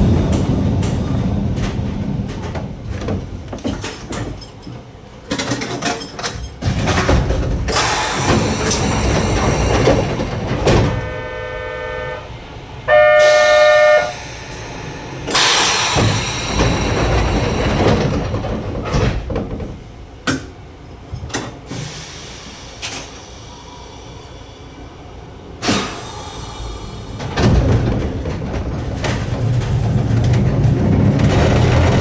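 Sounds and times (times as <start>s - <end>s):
train running noise: 0.0s - 32.0s
train horn tones: 10.8s - 14.3s.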